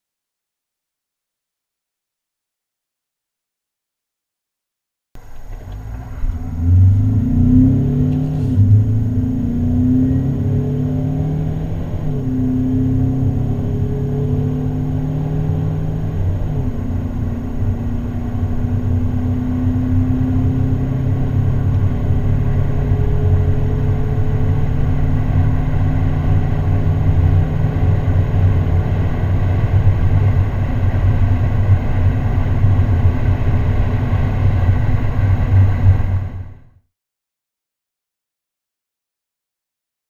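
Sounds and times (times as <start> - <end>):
diesel engine accelerating: 5.2 - 36.7
road noise inside car: 5.2 - 36.7.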